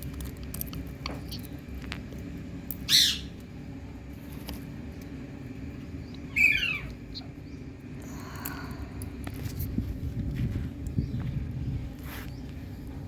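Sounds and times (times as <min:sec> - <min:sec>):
steady low rumble: 0:00.0 - 0:13.0
parrot harsh calls: 0:02.9 - 0:03.3, 0:06.3 - 0:07.0.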